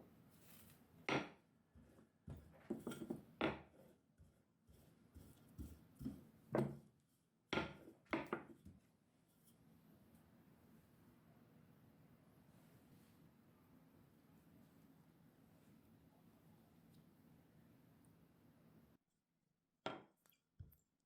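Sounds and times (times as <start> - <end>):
kitchenware knocking and clattering: 1.1 - 1.4, 2.3 - 3.7, 6.0 - 6.8, 7.5 - 8.7.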